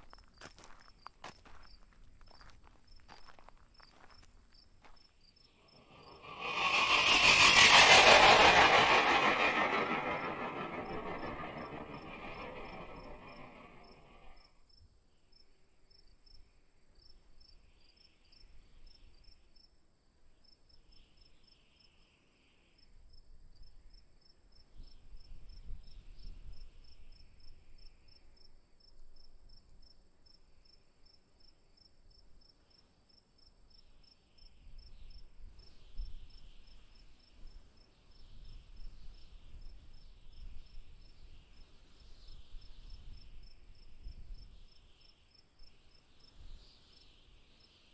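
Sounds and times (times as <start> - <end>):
low rumble: 5.8 - 14.4.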